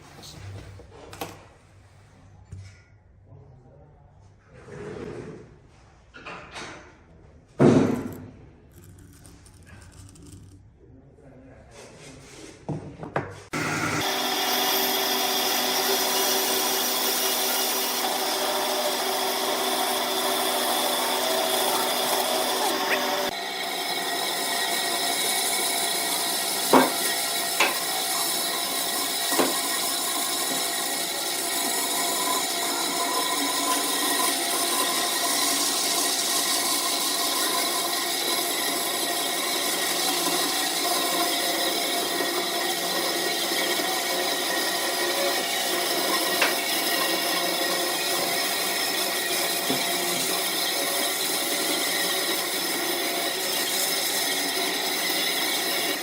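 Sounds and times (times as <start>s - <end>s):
wood lathe cutting: 13.5s - 56.0s
sharp knocks: 26.7s - 27.8s.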